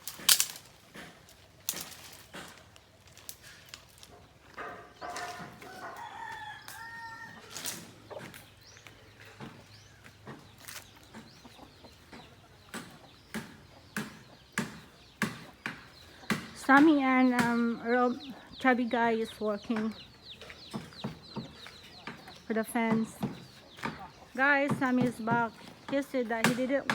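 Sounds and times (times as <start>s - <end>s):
rooster crowing: 5.1s - 7.9s.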